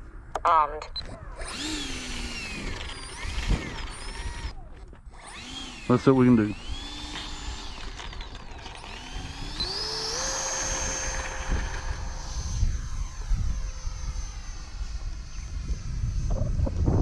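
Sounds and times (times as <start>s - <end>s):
electric ducted fan whining: 1.0s - 17.0s
wind rumbling on microphone: 6.5s - 17.0s.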